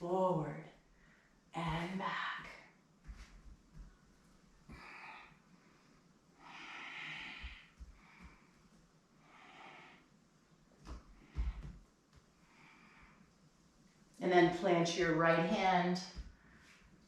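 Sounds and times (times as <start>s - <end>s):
person breathing: 4.7s - 10.2s, 11.0s - 13.4s.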